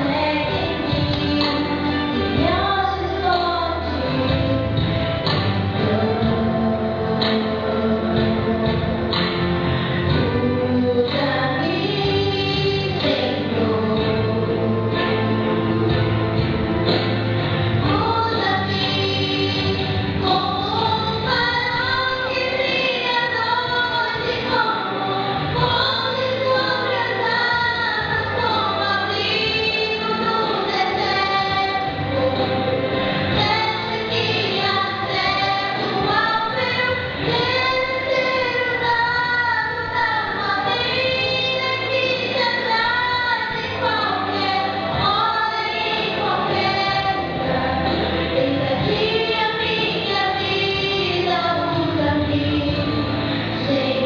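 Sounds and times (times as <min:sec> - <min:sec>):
two women singing gospel: 0:00.0 - 0:15.8, 0:17.7 - 0:54.0
instrumental accompaniment: 0:00.0 - 0:54.0.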